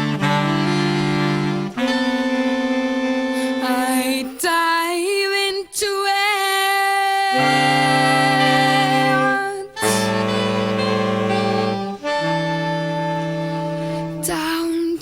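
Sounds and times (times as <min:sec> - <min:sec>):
saxophone ensemble held chords: 0:00.0 - 0:04.2, 0:07.3 - 0:14.7.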